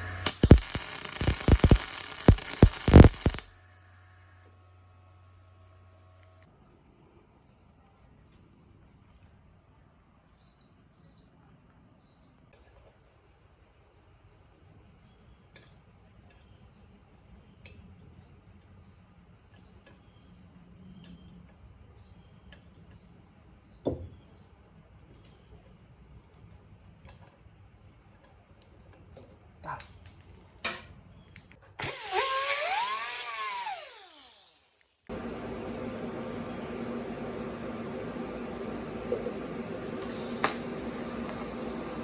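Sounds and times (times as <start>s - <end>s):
steady hum: 0.0s - 3.5s, 35.1s - 42.0s
power tool motor whirring: 0.0s - 4.5s, 31.8s - 42.0s.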